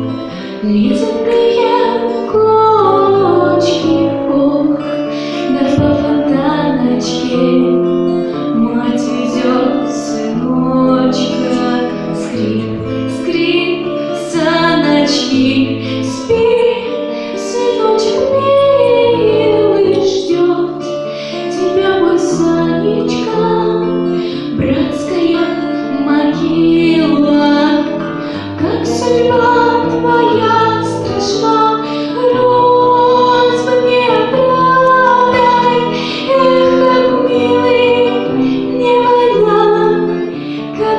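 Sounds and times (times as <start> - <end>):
high voice singing: 8.7 - 40.9.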